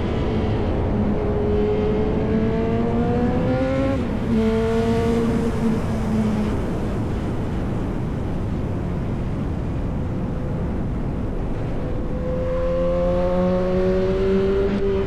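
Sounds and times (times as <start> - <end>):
road rumble: 0.0 - 15.0
wind rumble: 0.0 - 15.0
motorcycle engine accelerating: 12.1 - 15.0.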